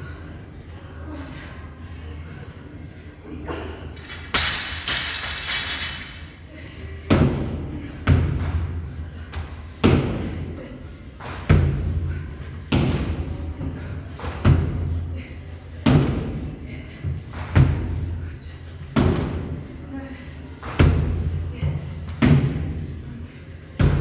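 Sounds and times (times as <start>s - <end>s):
weights clattering rattle: 4.0s - 6.3s.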